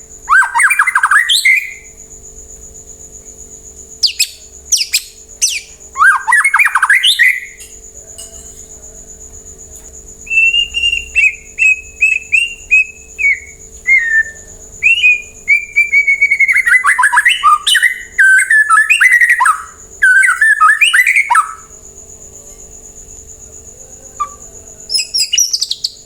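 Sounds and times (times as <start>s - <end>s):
bird singing slurred whistles: 0.2s - 1.9s, 4.0s - 7.6s, 10.2s - 21.7s, 24.2s - 26.0s.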